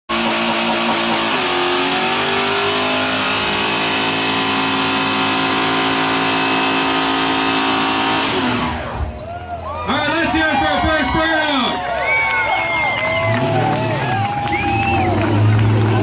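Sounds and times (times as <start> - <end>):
car engine at high revs: 0.1 - 9.3, 12.9 - 16.0
tyres spinning on pavement: 8.4 - 16.0.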